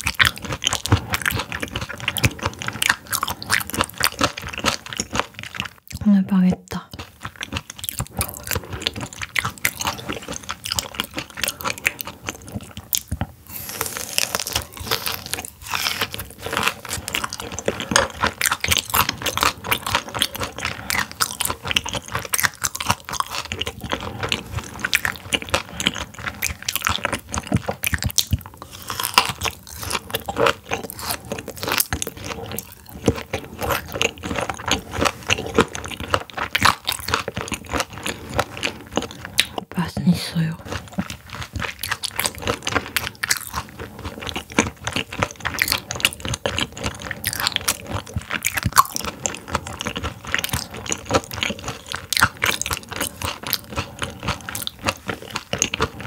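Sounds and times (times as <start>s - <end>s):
crunching and chewing frozen fish: 0.0s - 56.0s.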